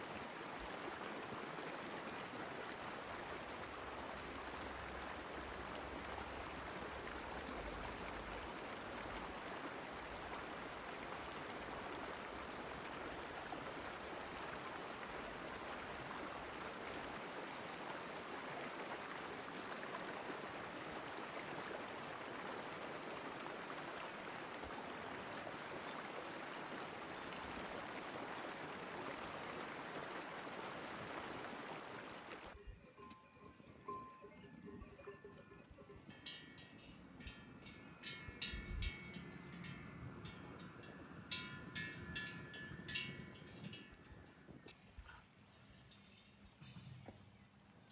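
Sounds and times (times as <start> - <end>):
mountain stream flowing: 0.0 - 36.7.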